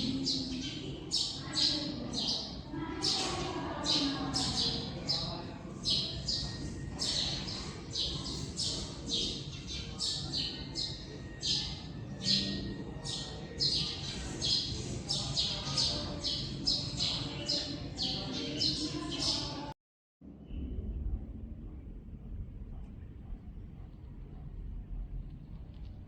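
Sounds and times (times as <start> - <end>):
small birds chirping: 0.0 - 19.7.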